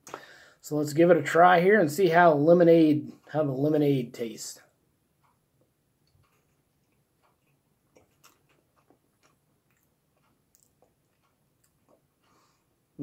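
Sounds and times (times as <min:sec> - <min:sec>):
person chewing cake: 0:06.0 - 0:12.8.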